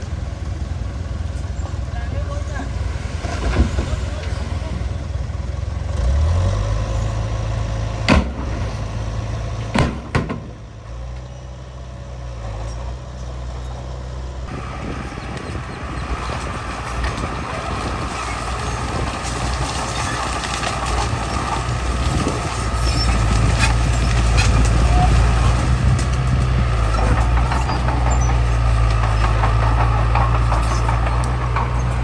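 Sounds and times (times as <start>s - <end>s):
diesel engine rumble: 0.0s - 32.0s
gritty grinding noise: 14.4s - 32.0s.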